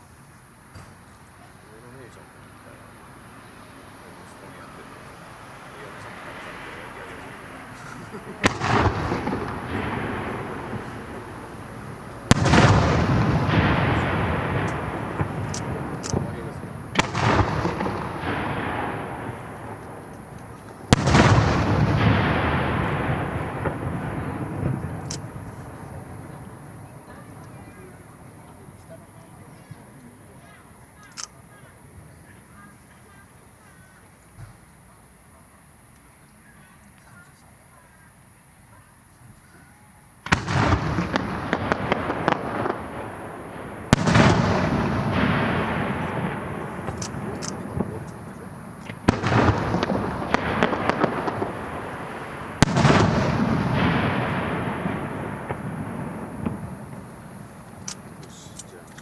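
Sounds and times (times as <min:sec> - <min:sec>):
rolling rumble: 0:04.6 - 0:30.1, 0:40.2 - 0:59.0
firework shell bursting: 0:07.7 - 0:27.8, 0:40.2 - 0:59.0.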